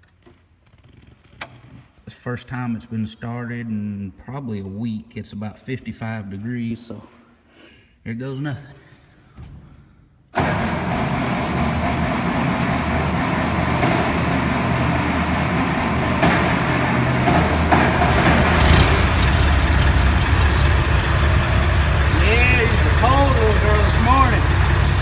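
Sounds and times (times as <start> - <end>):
tractor diesel engine starting: 10.4 - 25.0.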